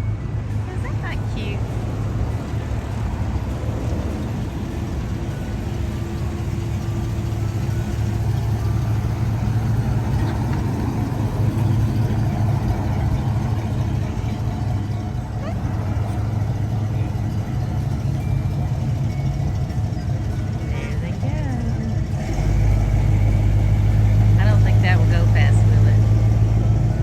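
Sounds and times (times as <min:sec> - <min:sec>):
car engines humming in traffic: 0:00.0 - 0:27.0.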